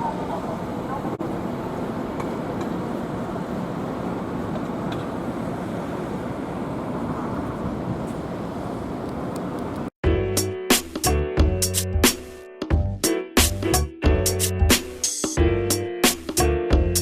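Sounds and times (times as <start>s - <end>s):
tram rumble: 0.0s - 9.9s
street traffic noise: 0.0s - 10.0s
background music with a beat: 10.0s - 17.0s.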